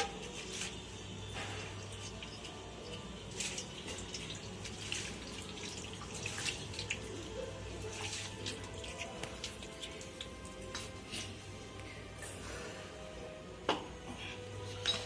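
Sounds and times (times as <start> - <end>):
liquid splashing and dripping: 0.1 - 11.4.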